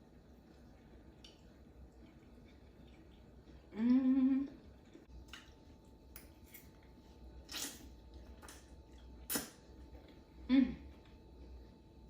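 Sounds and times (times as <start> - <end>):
person humming: 3.7 - 4.6, 10.4 - 10.9.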